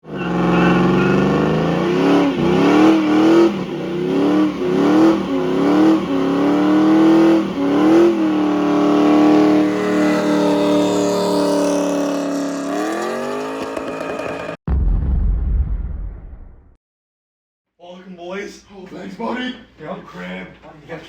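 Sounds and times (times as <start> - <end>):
small motorcycle engine revving: 0.0 - 14.6.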